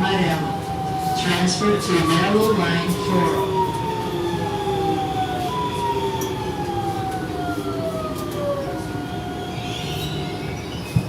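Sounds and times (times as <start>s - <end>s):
train running and wheel noise: 0.0s - 11.0s.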